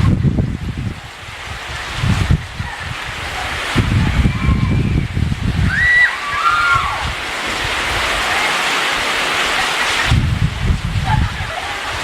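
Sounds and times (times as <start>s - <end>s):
low rumble of thunder: 0.0s - 5.8s, 10.1s - 12.0s
heavy rain pouring: 0.0s - 12.0s.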